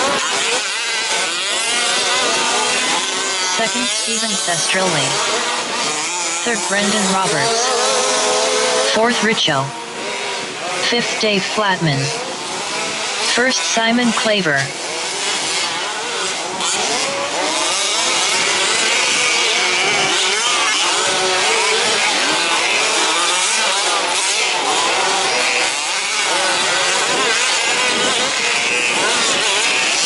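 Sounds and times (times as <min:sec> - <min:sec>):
model truck engines revving: 0:00.0 - 0:30.0.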